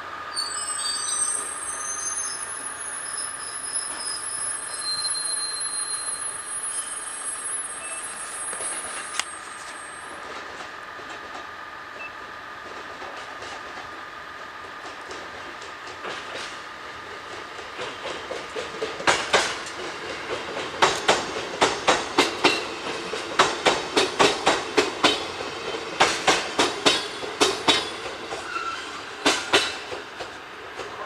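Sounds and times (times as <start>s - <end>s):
train wheels clattering over rail joints: 12.6s - 14.0s, 14.6s - 31.0s.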